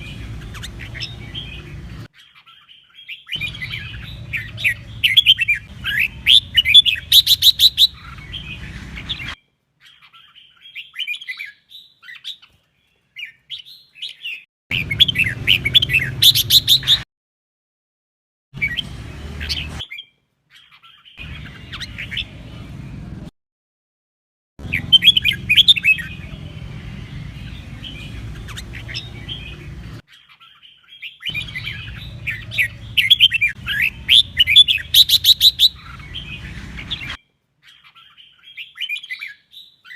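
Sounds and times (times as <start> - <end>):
bird singing whistled phrases: 3.0 - 9.3, 13.6 - 17.0, 24.6 - 26.2, 30.5 - 39.9.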